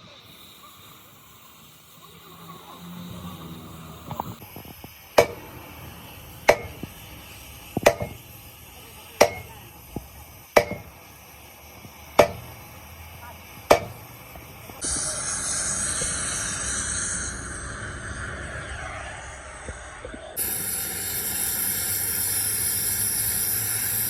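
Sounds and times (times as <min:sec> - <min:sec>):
hammer striking metal: 0:05.2 - 0:05.5, 0:06.5 - 0:06.9, 0:07.8 - 0:08.3, 0:09.2 - 0:09.6, 0:10.6 - 0:11.0, 0:12.2 - 0:12.6, 0:13.7 - 0:14.1.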